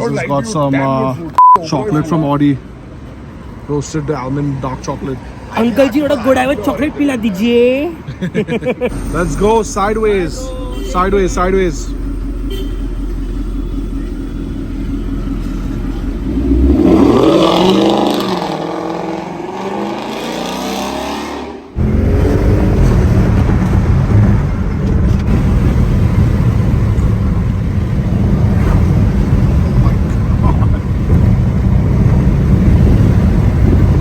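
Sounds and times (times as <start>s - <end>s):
engine and road drone: 0.0s - 34.0s
car engine revving: 8.9s - 34.0s.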